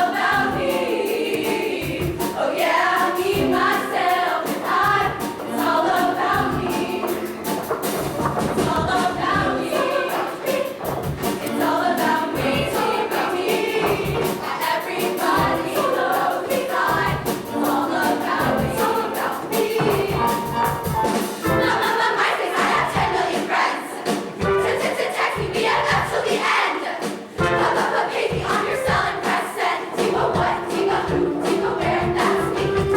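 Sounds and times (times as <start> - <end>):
choir singing in harmony: 0.0 - 32.9
driving drum beat: 0.0 - 32.9
live band playing: 3.0 - 21.8, 27.3 - 28.0, 30.4 - 32.9.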